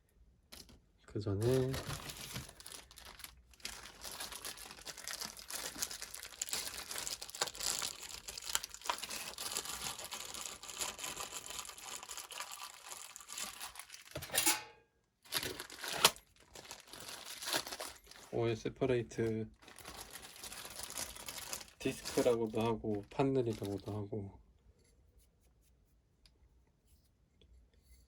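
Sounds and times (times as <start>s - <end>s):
packaging crinkling and rustling: 0.5s - 0.8s, 1.4s - 14.4s, 15.2s - 24.1s.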